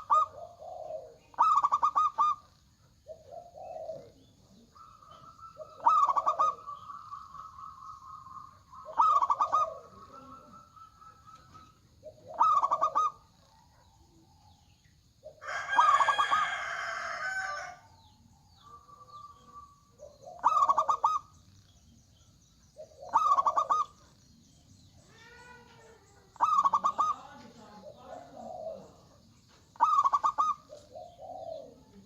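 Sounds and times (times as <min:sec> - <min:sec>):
rough dove call: 0:00.0 - 0:02.5, 0:03.1 - 0:13.6, 0:18.6 - 0:21.3, 0:22.8 - 0:24.0, 0:26.4 - 0:27.2, 0:29.8 - 0:31.8
dove cooing: 0:00.0 - 0:21.9, 0:22.7 - 0:32.0.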